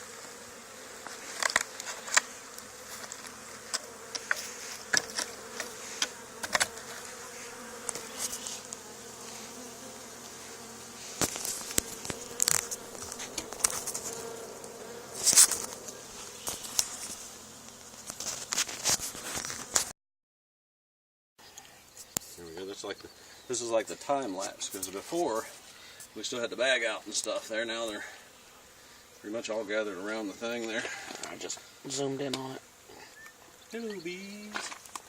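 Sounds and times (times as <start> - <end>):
bee swarm buzzing: 0.0 - 19.9, 22.1 - 35.0
sharp crackles: 11.0 - 19.9.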